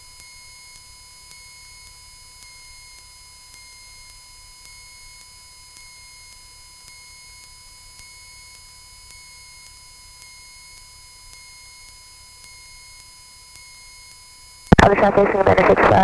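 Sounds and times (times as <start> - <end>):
steady electrical whine: 14.7 - 16.0.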